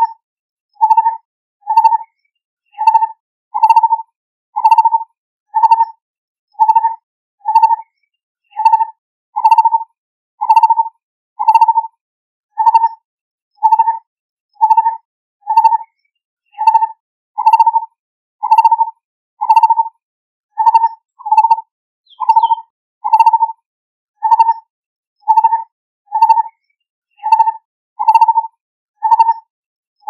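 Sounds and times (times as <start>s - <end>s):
barbet calling hollow notes: 22.1s - 23.4s.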